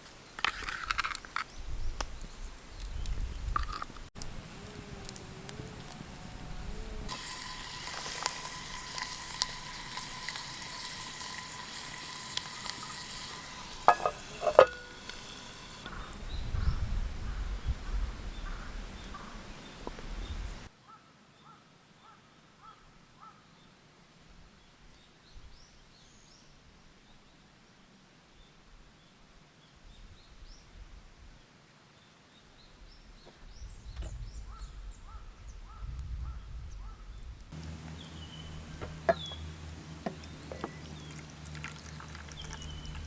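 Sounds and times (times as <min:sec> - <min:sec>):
food sizzling in a pan: 0:07.0 - 0:16.0, 0:37.6 - 0:43.0.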